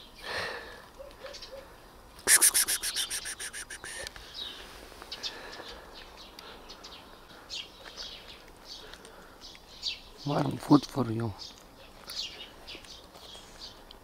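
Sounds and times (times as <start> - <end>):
bird rattling chatter: 2.3 - 4.0
bird chirps: 2.3 - 10.5.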